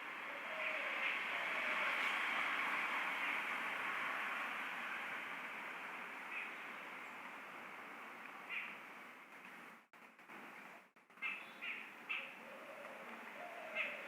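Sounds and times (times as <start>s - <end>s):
small bird chirping: 11.2s - 12.4s.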